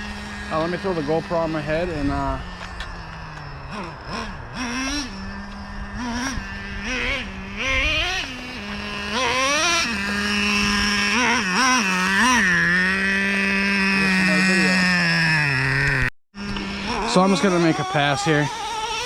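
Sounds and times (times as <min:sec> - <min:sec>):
nitro engine idling and revving: 0:00.0 - 0:19.0.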